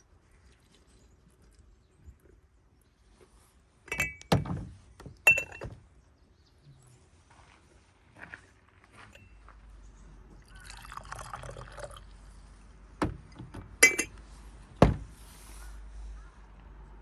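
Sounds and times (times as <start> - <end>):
teaware clinking: 3.9 - 4.4, 5.3 - 5.8, 13.8 - 14.2
tea pouring into a cup: 10.4 - 12.3.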